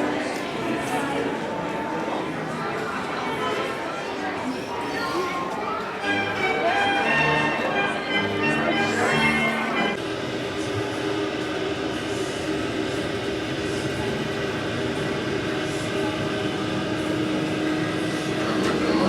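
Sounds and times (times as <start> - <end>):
ship machinery drone: 6.0 - 19.0.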